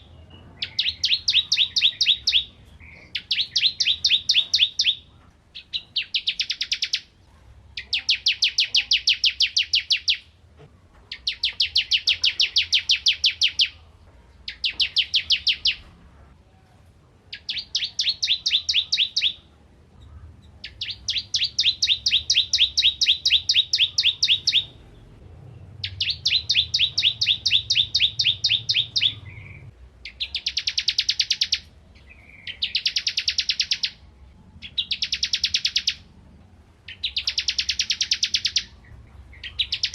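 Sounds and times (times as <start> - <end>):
bird singing sharp repeated notes: 0.0 - 10.4, 11.1 - 15.9, 17.3 - 36.2, 36.8 - 39.9.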